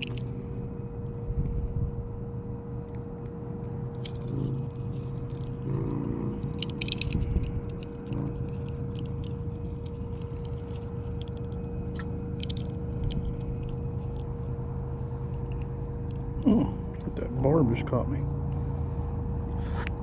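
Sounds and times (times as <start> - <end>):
handling clicks and rustles: 0.0 - 0.4, 3.2 - 16.4
constant hum: 0.0 - 20.0
steady low rumble: 0.0 - 20.0.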